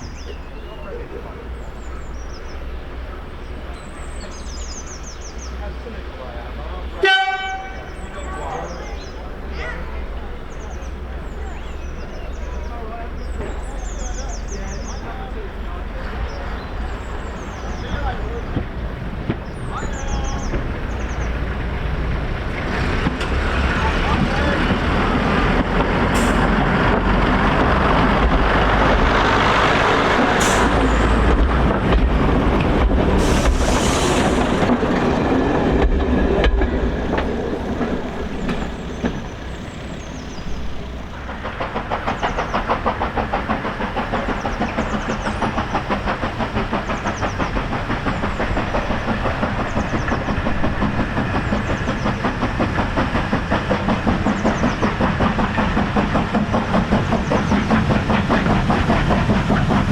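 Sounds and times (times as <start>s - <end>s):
train rumbling: 0.0s - 59.9s
quick even train beat: 17.4s - 59.9s
short hisses: 33.2s - 34.6s.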